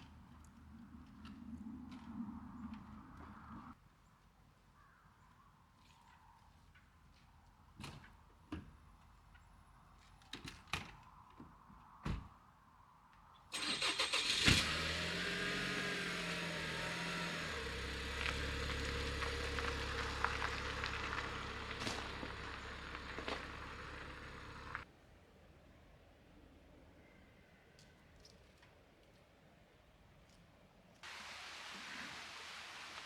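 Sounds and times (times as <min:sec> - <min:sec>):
car engine starting and idling: 0:13.6 - 0:24.8.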